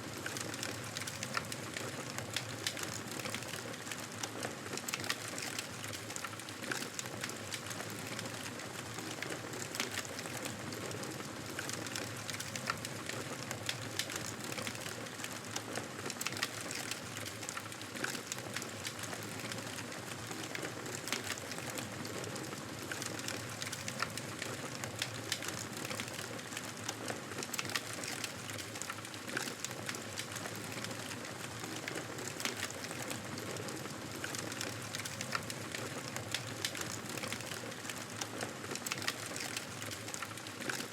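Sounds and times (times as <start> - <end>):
campfire crackling and popping: 0.2 - 3.8, 27.4 - 40.9.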